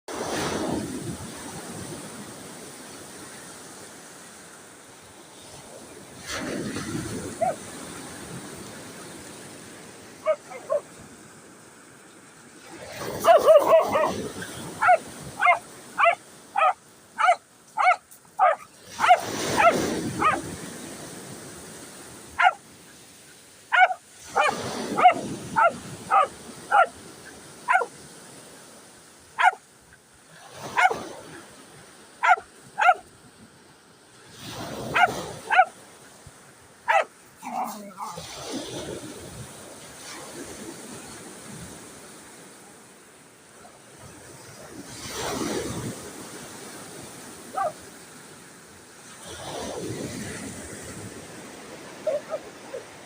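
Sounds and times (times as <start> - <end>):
dog barking: 7.4 - 7.6, 10.2 - 10.9, 13.1 - 20.5, 22.4 - 22.6, 23.7 - 27.0, 27.7 - 27.9, 29.4 - 29.6, 30.7 - 31.0, 32.2 - 33.0, 34.9 - 35.8, 36.9 - 38.3, 47.5 - 47.8, 52.0 - 52.9.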